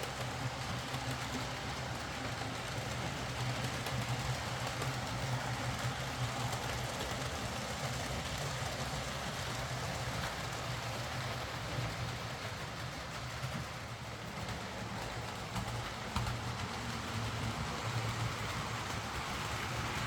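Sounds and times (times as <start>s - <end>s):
model train motor hum: 0.0s - 20.0s
wheels running on rails: 0.0s - 20.0s.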